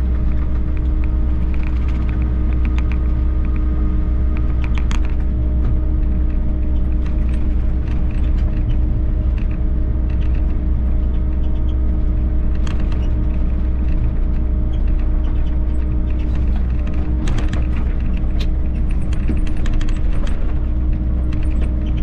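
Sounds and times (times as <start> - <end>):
excavator diesel engine running: 0.0 - 22.0
bucket and hydraulics clicks and scrapes: 12.5 - 22.0.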